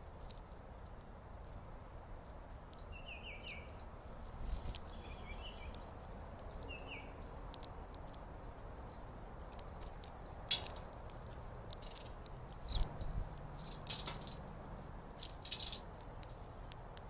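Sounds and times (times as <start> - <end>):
low outdoor background noise: 0.0 - 17.0
small birds chirping: 2.2 - 17.0
sharp ticks: 5.6 - 17.0.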